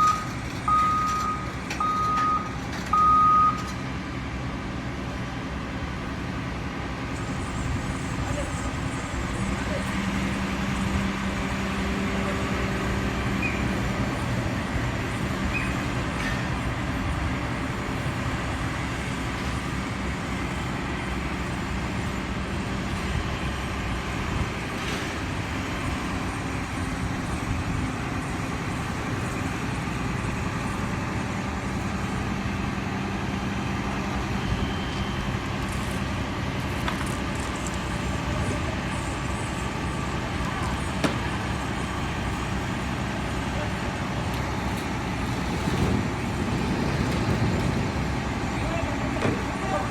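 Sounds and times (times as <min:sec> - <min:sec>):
vehicle engine and road noise: 0:00.0 - 0:49.9.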